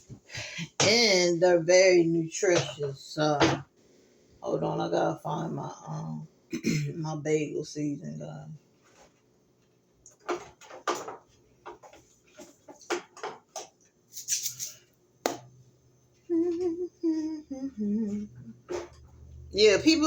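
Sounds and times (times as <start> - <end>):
kitchen items clicking and knocking: 10.1 - 15.4
person humming: 16.2 - 18.8.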